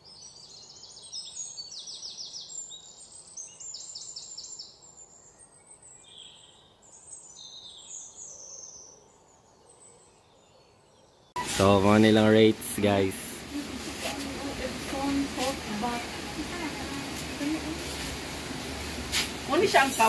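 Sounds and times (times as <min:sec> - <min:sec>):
birds chirping: 0:00.0 - 0:20.0
faint outdoor hiss: 0:00.0 - 0:20.0.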